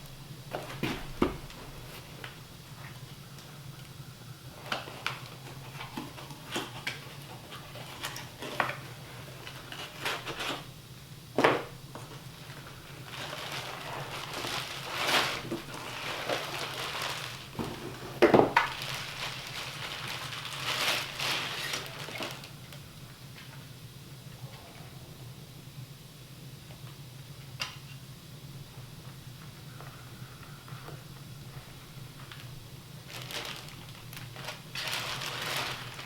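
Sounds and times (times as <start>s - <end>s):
steady low hum: 0.0s - 36.0s
scraping or rustling: 12.1s - 22.5s, 33.1s - 36.0s.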